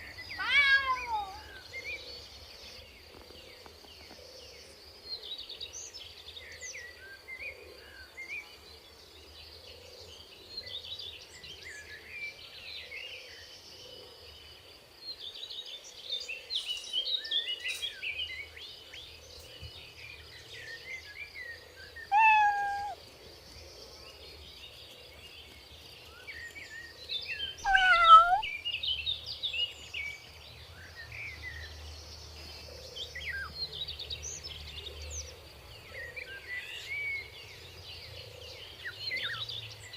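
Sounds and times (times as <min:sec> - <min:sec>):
small birds chirping: 0:00.0 - 0:04.8, 0:15.2 - 0:39.9
cat meowing: 0:00.4 - 0:01.5, 0:22.1 - 0:23.0, 0:27.6 - 0:28.5.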